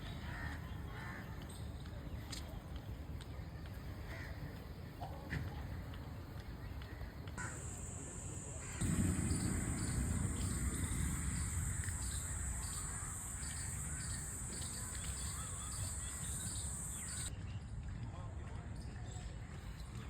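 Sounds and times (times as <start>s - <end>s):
steady high-pitched hiss: 7.3s - 17.3s
birds calling and chirping: 7.4s - 17.3s
low rumble: 7.5s - 17.3s.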